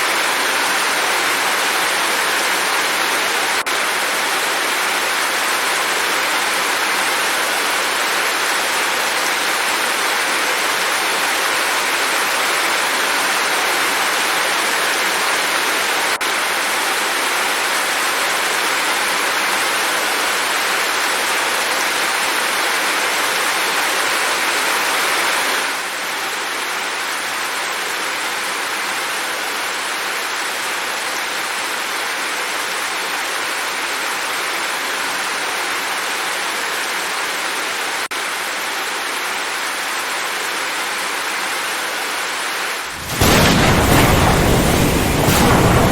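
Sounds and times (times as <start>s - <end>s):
dense rain hiss: 0.0s - 45.9s.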